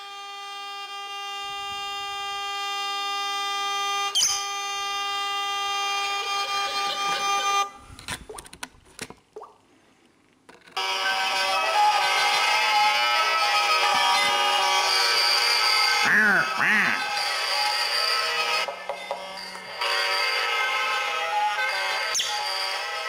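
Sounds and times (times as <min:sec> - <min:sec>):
vehicle horn blast: 0:00.0 - 0:07.8, 0:19.8 - 0:22.3
bird chirp: 0:04.2 - 0:04.5.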